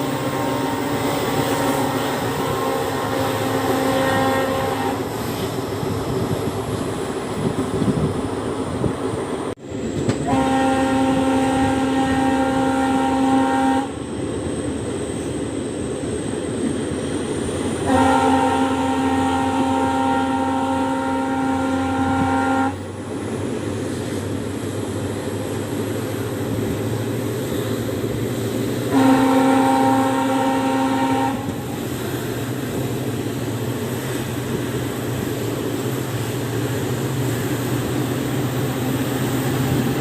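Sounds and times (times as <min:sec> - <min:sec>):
locomotive horn blasts: 0:00.0 - 0:05.1, 0:10.2 - 0:14.0, 0:17.8 - 0:22.9, 0:28.9 - 0:31.6.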